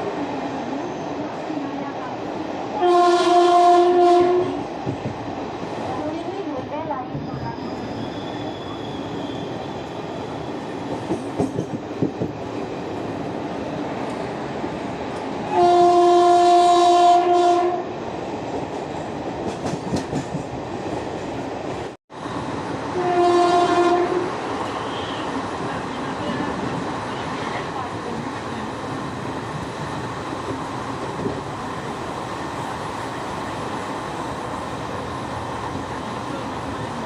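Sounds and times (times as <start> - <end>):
train rumbling along track: 0.0 - 37.0
train horn: 2.8 - 4.6, 15.5 - 17.9, 22.9 - 25.3
rail clatter: 10.6 - 12.6, 18.4 - 21.9.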